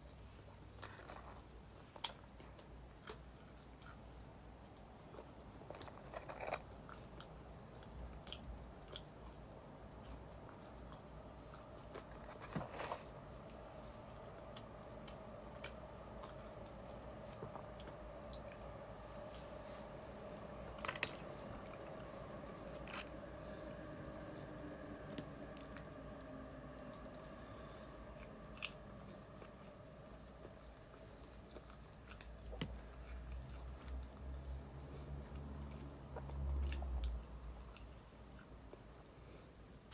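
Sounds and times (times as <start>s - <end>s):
person chewing crunchy food: 0.0s - 38.9s
faint steady hum: 0.0s - 39.9s
small crunches: 5.1s - 9.4s.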